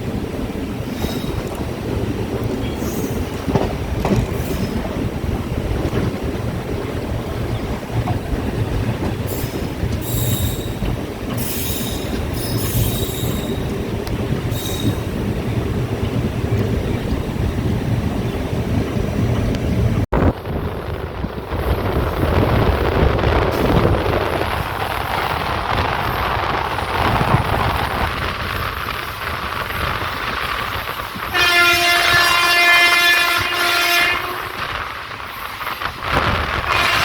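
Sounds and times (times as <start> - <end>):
train wheels rumbling on rails: 0.0 - 37.0
locomotive horn: 31.3 - 34.8, 36.5 - 37.0.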